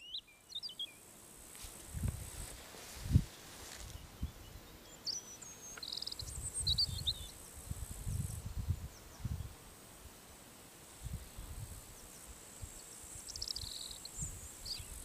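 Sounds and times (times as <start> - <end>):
small bird chirping: 0.0 - 1.0, 3.9 - 7.4, 12.8 - 15.0
crickets trilling: 0.0 - 9.6, 10.8 - 15.0.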